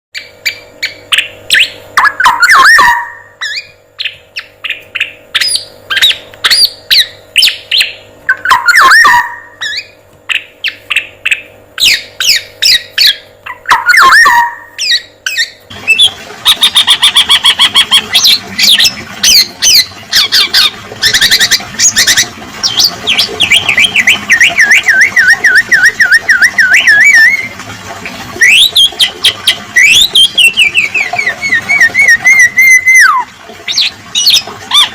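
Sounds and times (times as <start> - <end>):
bird chirping and squawking: 0.2 - 27.5, 28.4 - 34.9
bird trills: 0.2 - 27.5
faint steady hum: 0.2 - 34.9
long wavering whistle: 24.3 - 27.5, 29.8 - 33.2.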